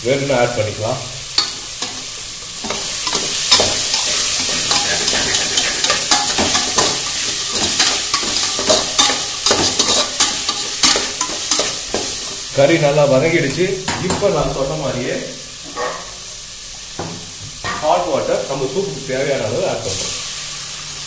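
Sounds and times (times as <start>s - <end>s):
food sizzling in hot oil: 0.0s - 21.0s
metal spatula scraping pot: 1.4s - 12.3s.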